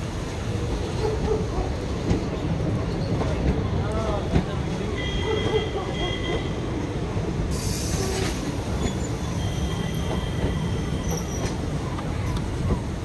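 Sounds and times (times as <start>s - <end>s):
train wheels rumbling on rails: 0.0s - 13.0s
burst of hiss: 7.5s - 9.3s
faint wheel squeals: 8.1s - 11.6s.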